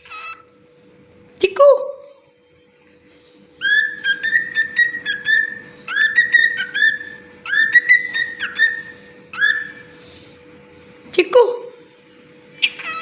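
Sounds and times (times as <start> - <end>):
faint steady hum: 0.0 - 13.0
cockatiel whistling: 3.6 - 10.0, 12.6 - 13.0.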